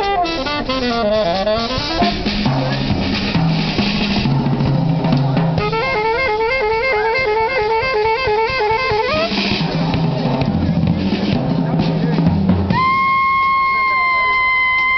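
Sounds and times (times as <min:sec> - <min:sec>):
lead instrument repeating figure: 0:00.0 - 0:03.8, 0:05.6 - 0:09.6
bass line: 0:00.0 - 0:14.9
drum kit: 0:00.0 - 0:14.9.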